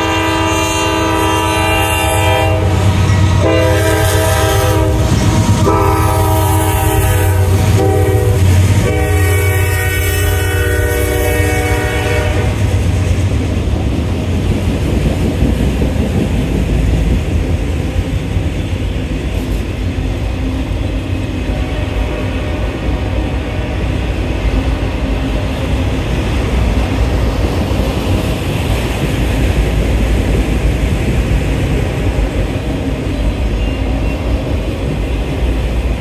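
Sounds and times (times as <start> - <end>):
locomotive air horn blasts: 0.0 - 12.8, 21.4 - 24.0.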